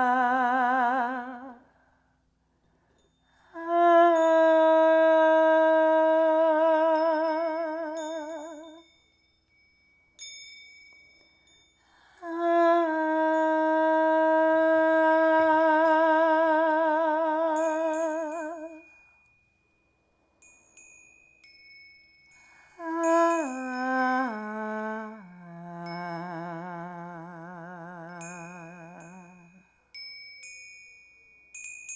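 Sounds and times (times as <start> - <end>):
woman humming with vibrato: 0.0 - 1.7, 3.5 - 8.8, 12.1 - 19.0, 22.7 - 29.6
small chimes ringing: 6.9 - 11.8, 17.5 - 24.3, 28.1 - 31.9.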